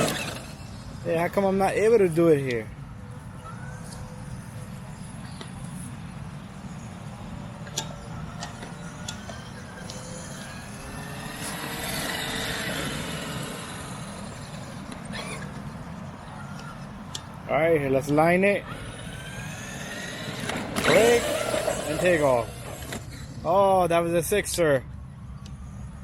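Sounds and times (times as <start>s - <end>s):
rc truck motor whining: 0.0s - 1.2s, 7.6s - 16.8s, 18.6s - 23.5s.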